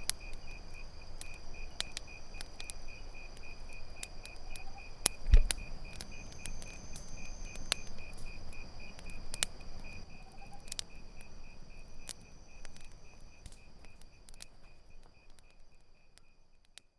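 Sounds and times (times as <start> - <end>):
campfire crackling and popping: 0.0 - 16.9
crickets chirping: 0.0 - 16.9
low thump: 5.3 - 5.5.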